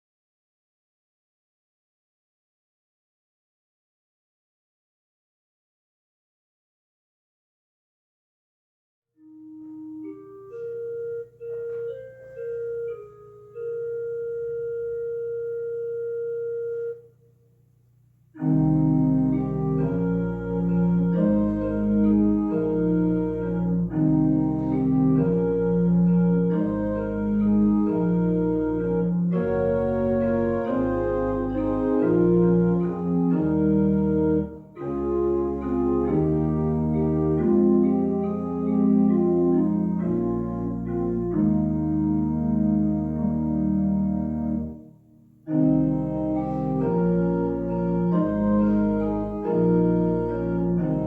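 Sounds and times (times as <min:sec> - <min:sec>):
organ playing slow melody: 0:09.2 - 0:17.3, 0:18.4 - 0:51.0.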